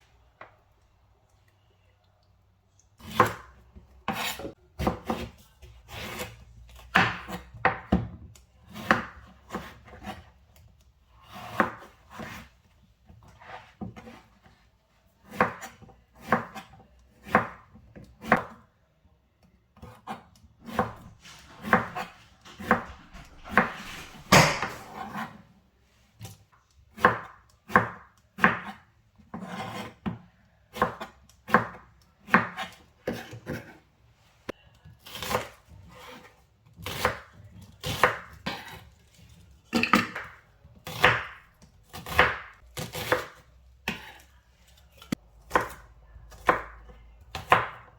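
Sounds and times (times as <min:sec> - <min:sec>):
knife chopping on cutting board: 0:03.0 - 0:10.3, 0:11.3 - 0:12.5, 0:15.2 - 0:18.6, 0:19.8 - 0:25.4, 0:27.0 - 0:33.8, 0:35.0 - 0:38.8, 0:39.8 - 0:44.2, 0:45.0 - 0:47.9.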